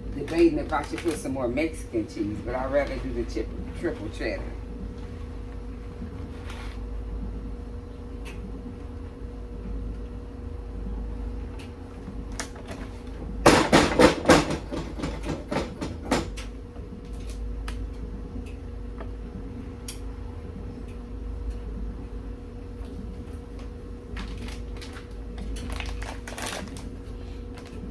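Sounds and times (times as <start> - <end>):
steady hum: 0.0 - 27.9
kitchen knocks and rattles: 13.4 - 16.5.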